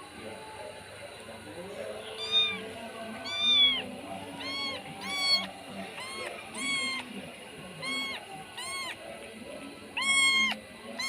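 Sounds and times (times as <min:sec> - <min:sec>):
cats meowing: 0:02.1 - 0:09.0, 0:09.9 - 0:11.0.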